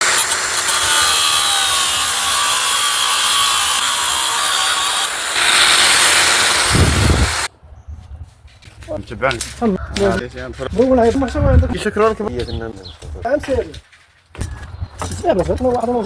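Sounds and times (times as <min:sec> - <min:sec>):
power tool cutting: 0:00.0 - 0:07.5.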